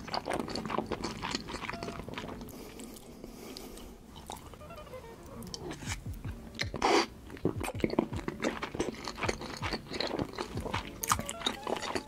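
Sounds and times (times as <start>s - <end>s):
wet chewing and lip smacks: 6.6s - 12.0s.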